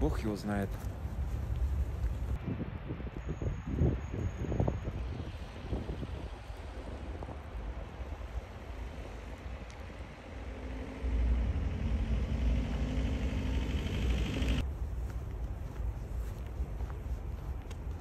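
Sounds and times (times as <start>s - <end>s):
wind rumble on microphone: 0.7s - 18.0s
vehicle engine running: 10.5s - 14.6s.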